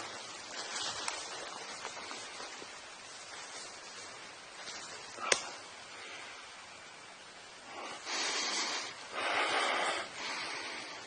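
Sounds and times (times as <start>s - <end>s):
low hiss: 0.0s - 11.0s
man breathing heavily: 7.6s - 11.0s.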